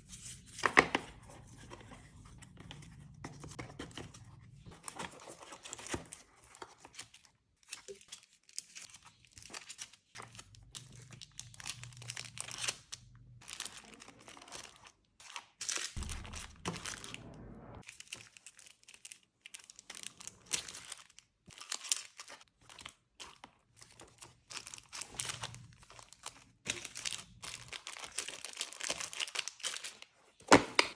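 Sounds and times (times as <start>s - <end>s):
plastic packaging crinkling: 7.8s - 14.9s, 24.0s - 30.0s.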